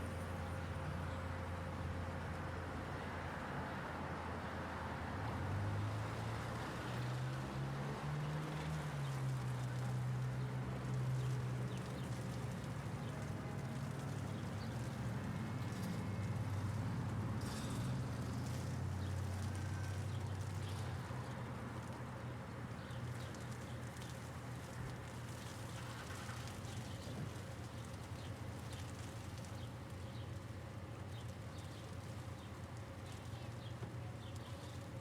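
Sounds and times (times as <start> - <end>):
road noise hiss: 0.0 - 35.0
vehicle engines passing: 0.0 - 35.0.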